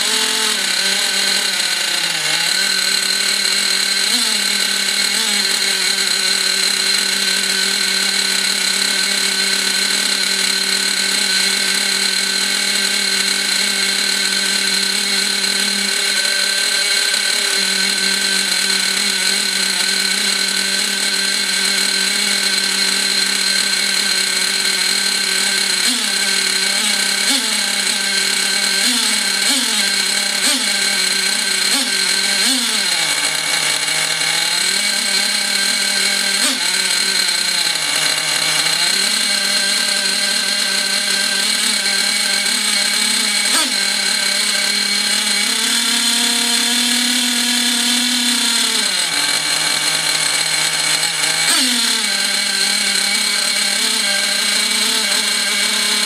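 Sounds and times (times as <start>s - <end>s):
model engine running rough: 0.0s - 56.0s.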